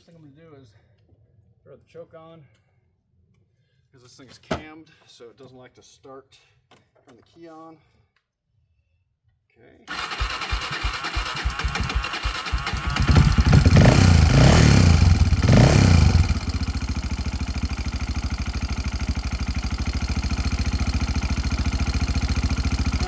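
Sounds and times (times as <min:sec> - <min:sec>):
single-cylinder engine revving and idling: 0:09.9 - 0:23.0.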